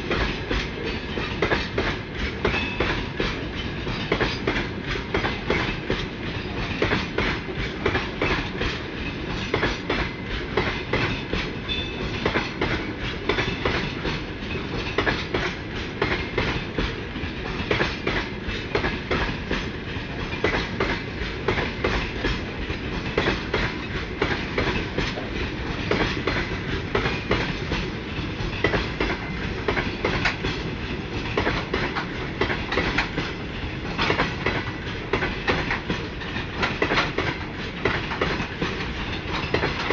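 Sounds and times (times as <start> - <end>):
freight train rumble: 0.0 - 39.9
train wheels clattering over rail joints: 0.0 - 39.9.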